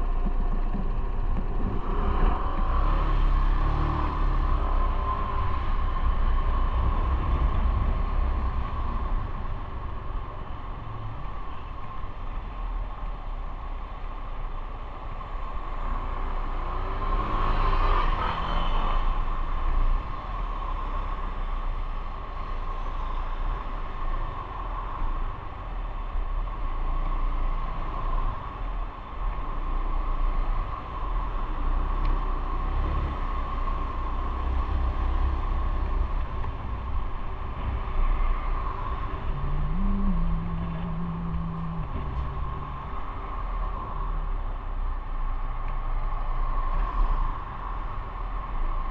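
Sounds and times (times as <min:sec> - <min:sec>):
wind and road noise: 0:00.0 - 0:48.9
motorcycle engine rumbling: 0:36.1 - 0:44.7.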